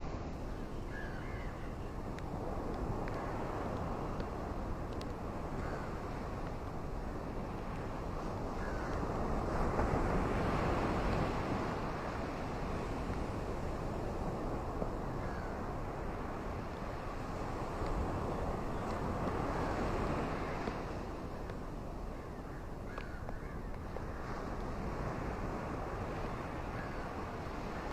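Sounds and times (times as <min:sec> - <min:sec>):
sea surf rushing: 0:00.0 - 0:22.9, 0:23.7 - 0:27.9
wind: 0:00.0 - 0:27.9.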